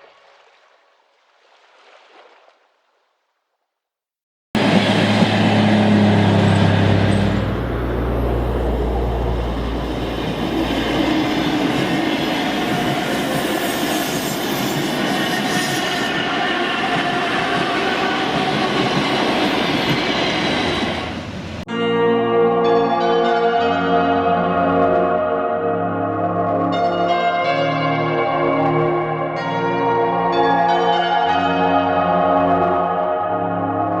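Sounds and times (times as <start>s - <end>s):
electric train on rails: 4.6s - 21.7s
wheel squeal: 9.7s - 21.1s.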